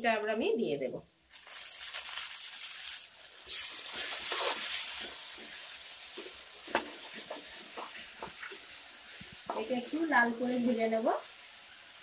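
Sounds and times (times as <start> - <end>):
paste sizzling in hot oil: 1.3 - 12.0
spatula scraping a wok: 3.5 - 9.8.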